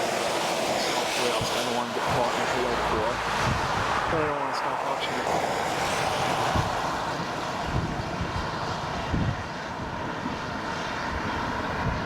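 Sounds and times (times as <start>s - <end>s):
gusts buffeting microphone: 0.0s - 12.0s
rushing wind: 0.0s - 12.0s.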